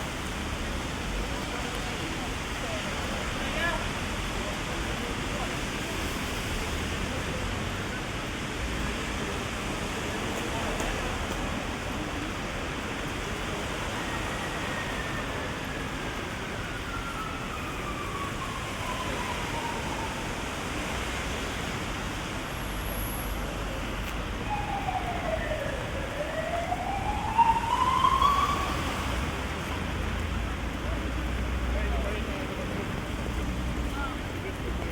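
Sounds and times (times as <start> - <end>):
heavy rain hissing: 0.0 - 34.9
emergency siren wailing: 13.3 - 21.8, 24.0 - 30.0.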